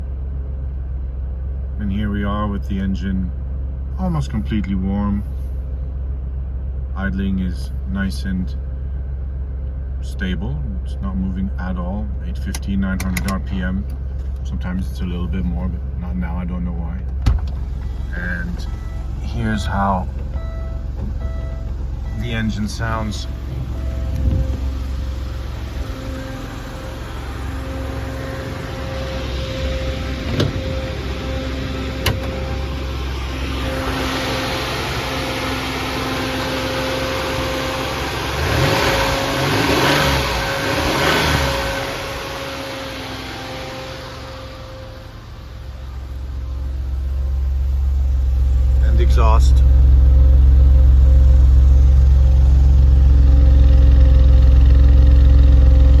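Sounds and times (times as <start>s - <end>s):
car engine idling: 0.0s - 56.0s
engine throttle blips: 4.0s - 56.0s.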